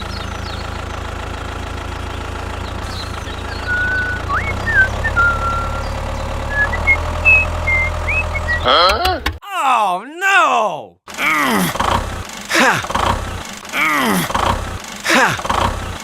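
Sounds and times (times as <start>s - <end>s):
small engine idling: 0.0s - 8.6s, 11.1s - 16.0s
high whistled chirps: 3.3s - 8.7s.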